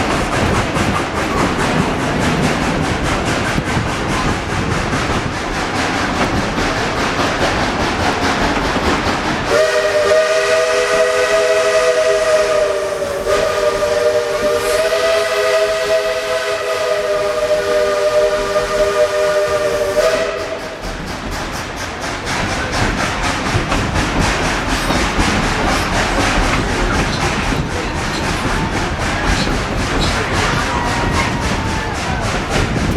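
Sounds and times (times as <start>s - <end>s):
steam train rhythmic chugging: 0.0s - 32.9s
steam locomotive whistle: 9.5s - 20.8s.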